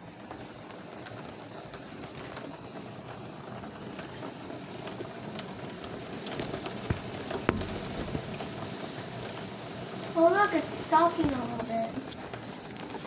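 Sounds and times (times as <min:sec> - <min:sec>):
heavy rain on a house: 0:00.0 - 0:13.0
sharp knocks: 0:06.9 - 0:08.2.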